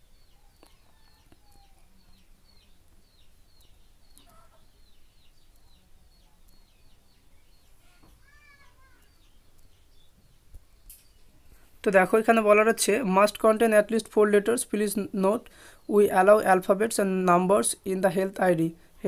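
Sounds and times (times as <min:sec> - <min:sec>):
faint high bird chirps: 0:00.0 - 0:11.7.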